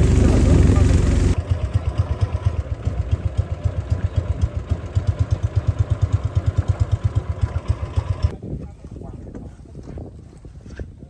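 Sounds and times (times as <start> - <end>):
boat engine thumping: 0.0 - 1.6.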